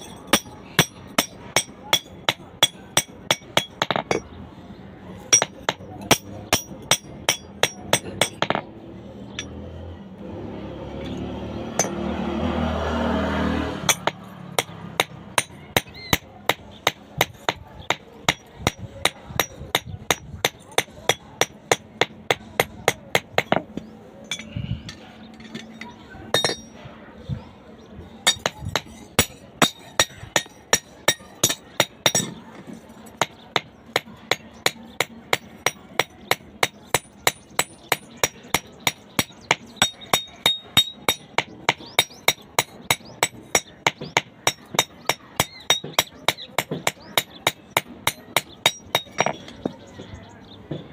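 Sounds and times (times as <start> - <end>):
hammer striking metal on anvil: 0.0 - 4.3, 5.3 - 8.6, 11.8 - 12.1, 13.9 - 24.5, 25.7 - 26.8, 28.2 - 32.4, 33.1 - 49.5.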